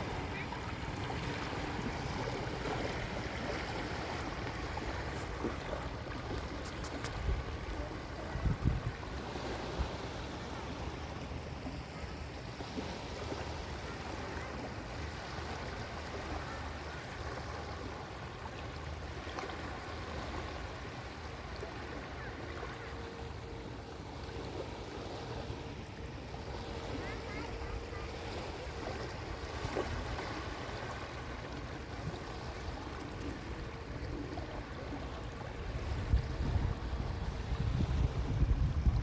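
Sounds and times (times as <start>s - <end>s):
waves washing onto beach: 0.0s - 39.0s.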